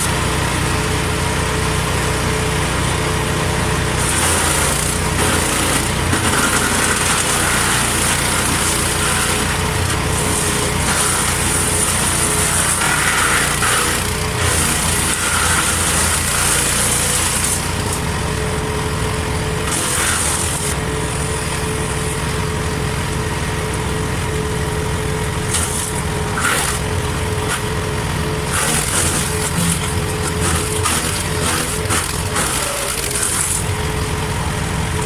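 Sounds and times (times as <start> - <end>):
wood chipper engine running: 0.0 - 35.0
branches being chipped: 4.0 - 18.0, 25.5 - 33.9.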